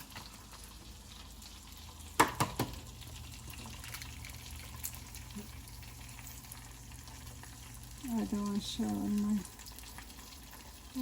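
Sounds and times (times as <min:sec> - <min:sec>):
eggs sizzling in a pan: 0:00.0 - 0:11.0
egg shell cracking: 0:03.4 - 0:05.4.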